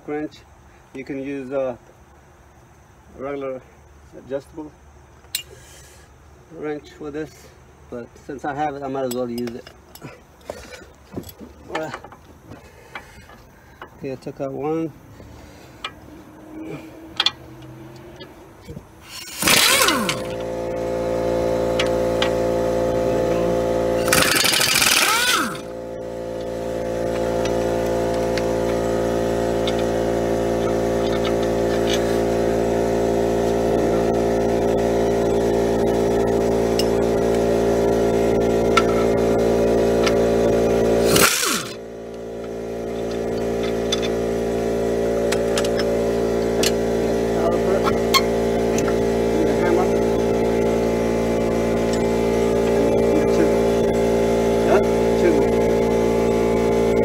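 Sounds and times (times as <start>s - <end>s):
steady machine hum: 4.7s - 57.0s
impact wrench hammering: 17.1s - 20.5s, 21.7s - 22.6s, 23.9s - 32.6s, 33.4s - 46.9s, 47.7s - 50.3s.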